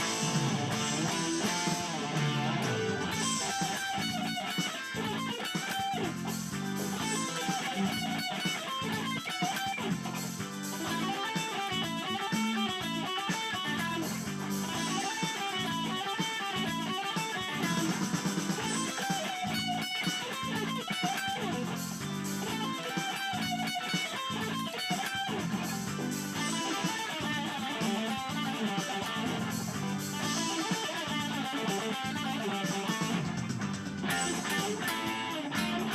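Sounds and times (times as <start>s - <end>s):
bass notes: 0.0s - 4.4s, 24.3s - 35.9s
electric guitar music: 0.0s - 35.9s.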